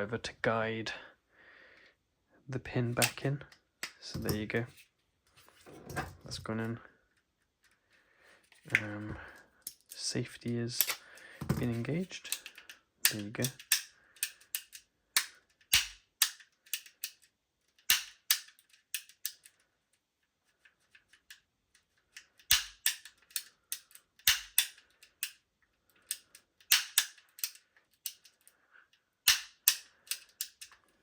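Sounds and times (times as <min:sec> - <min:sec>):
pistol mechanism metallic clicks: 0:03.0 - 0:03.2, 0:12.2 - 0:19.6, 0:22.1 - 0:25.4, 0:26.0 - 0:28.5, 0:29.2 - 0:30.8.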